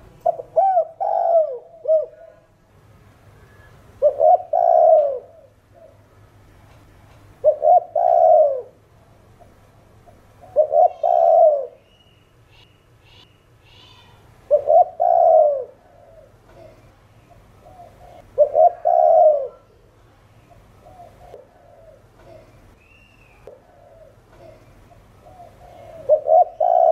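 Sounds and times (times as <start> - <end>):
dove cooing: 0.2 - 2.5, 3.6 - 6.1, 7.4 - 8.8, 10.0 - 11.8, 13.8 - 19.8, 20.5 - 22.6, 23.4 - 26.9.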